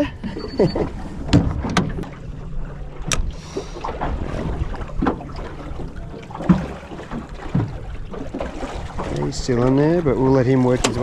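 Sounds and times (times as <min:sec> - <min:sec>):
water slapping boat hull: 0:00.0 - 0:11.0
splashes: 0:01.0 - 0:11.0
knocks on boat: 0:01.2 - 0:02.2, 0:03.9 - 0:09.8.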